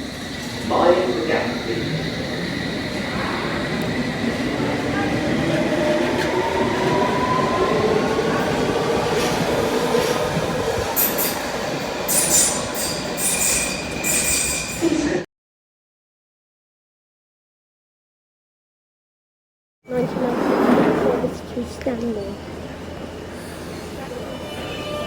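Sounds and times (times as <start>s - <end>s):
wheels squealing on rails: 0.0s - 15.2s, 23.2s - 25.0s.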